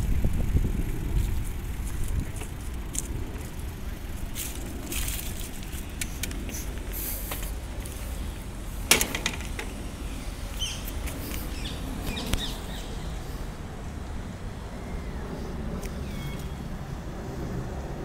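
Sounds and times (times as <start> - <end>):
wind on microphone: 0.0 - 8.7
bicycle riding rumble: 0.0 - 18.0
bird chirps: 10.0 - 13.2, 15.9 - 16.7.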